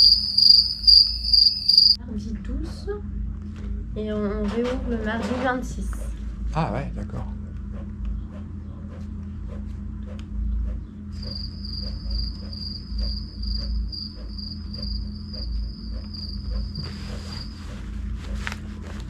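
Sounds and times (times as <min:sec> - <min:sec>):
insect chirping trill: 0:00.0 - 0:02.0, 0:11.1 - 0:17.6
steady low hum: 0:00.0 - 0:19.0.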